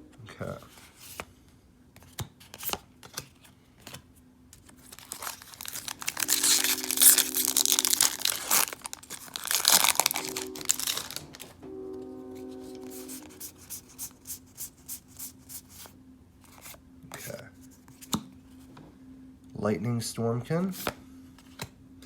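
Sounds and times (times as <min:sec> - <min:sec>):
foil wrapper crinkling: 0:04.6 - 0:11.5.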